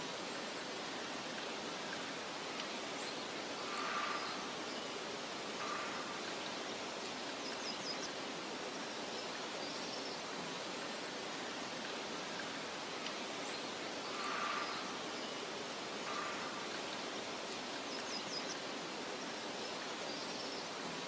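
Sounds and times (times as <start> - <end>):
faint bird chirps: 3.0 - 6.6, 13.5 - 17.2.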